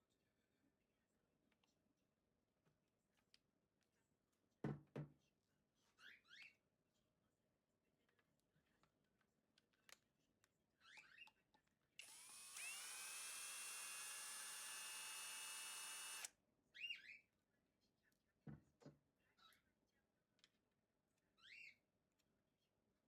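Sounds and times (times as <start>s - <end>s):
hair dryer running: 12.0s - 16.3s.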